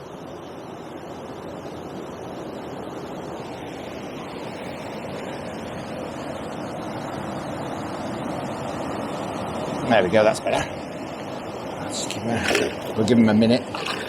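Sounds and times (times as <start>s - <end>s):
water rushing through weir: 12.4s - 13.1s, 13.7s - 14.0s.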